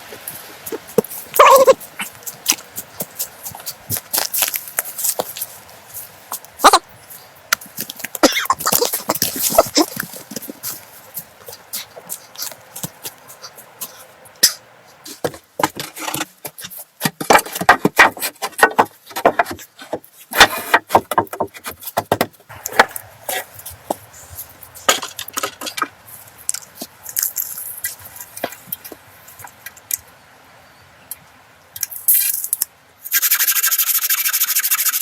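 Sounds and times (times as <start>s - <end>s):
sharp irregular knocks and clicks: 15.2s - 23.0s.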